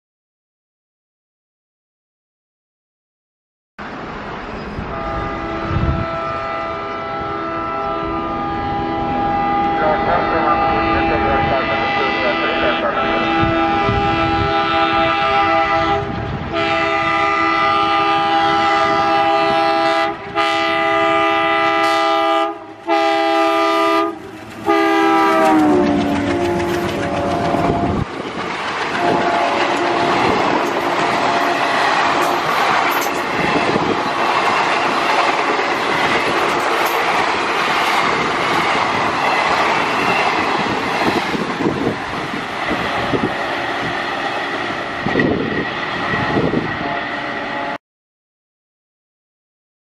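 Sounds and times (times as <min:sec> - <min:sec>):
locomotive horn blasts: 0:04.9 - 0:28.0, 0:29.0 - 0:33.2, 0:46.8 - 0:47.8
coaches passing clickety-clack: 0:24.2 - 0:43.3.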